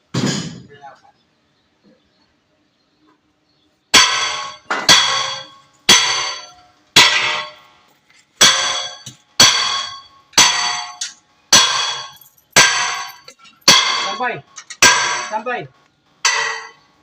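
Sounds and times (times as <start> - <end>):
hammer clanging on steel: 4.0 - 7.6, 8.4 - 15.5, 16.2 - 16.8.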